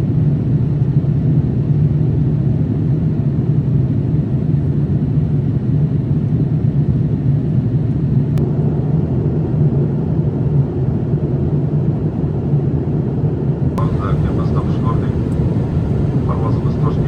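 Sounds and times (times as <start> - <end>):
airliner cabin rumble: 13.8 - 17.0.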